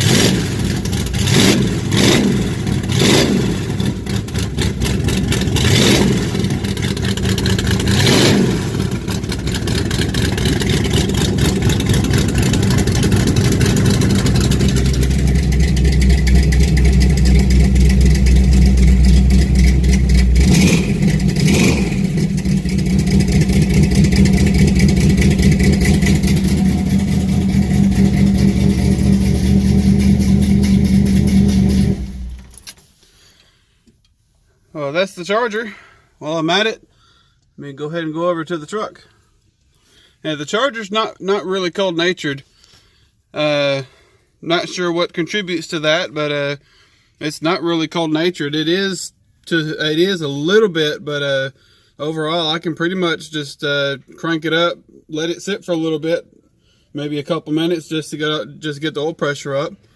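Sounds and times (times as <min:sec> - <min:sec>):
car engine revving and idling: 0:00.0 - 0:32.6.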